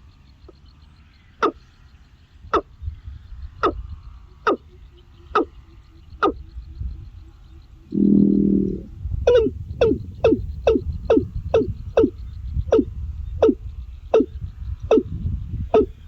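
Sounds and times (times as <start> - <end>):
animal calling: 7.9 - 14.3, 15.7 - 16.0.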